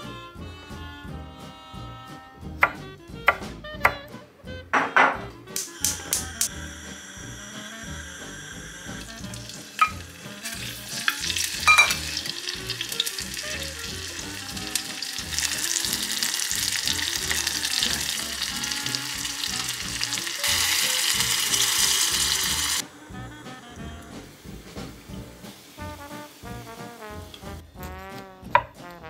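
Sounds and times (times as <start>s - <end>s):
pork sizzling in oil: 5.5s - 28.9s
water poured into hot pot: 7.0s - 22.8s
spoon clinking against pot: 11.6s - 12.1s.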